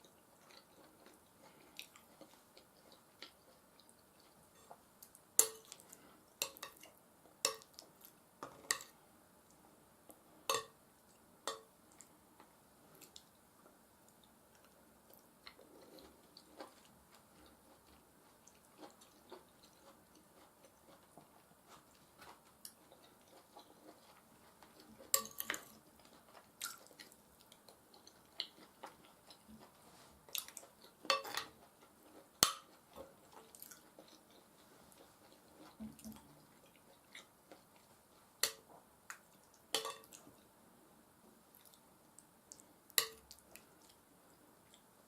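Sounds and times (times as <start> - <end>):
cutlery clicking against a dish: 7.5 - 7.8
wet chewing: 14.6 - 38.0.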